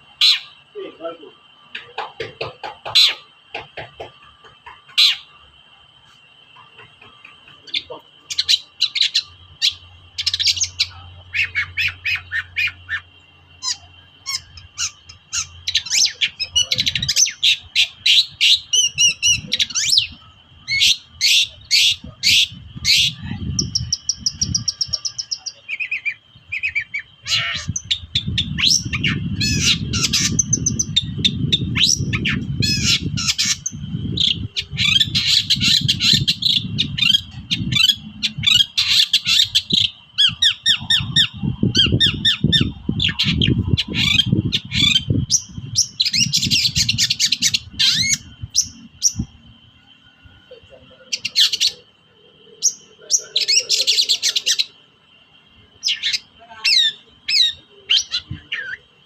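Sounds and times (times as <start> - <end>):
bird squawking and chattering: 0.2 - 0.6, 1.6 - 5.4, 6.5 - 49.3, 51.1 - 51.9, 55.8 - 58.9
low rumbling noise: 6.4 - 25.6, 26.2 - 53.9.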